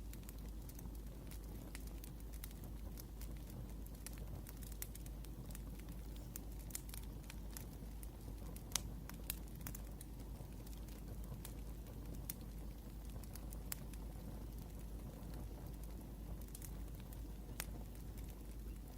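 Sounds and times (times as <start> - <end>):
wood fire crackling: 0.0 - 18.9.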